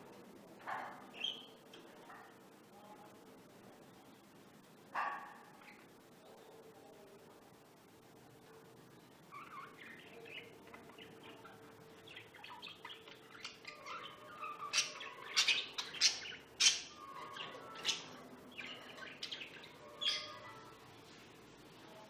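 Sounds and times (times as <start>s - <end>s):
lovebirds chirping and squawking: 1.1s - 1.6s, 9.3s - 21.2s.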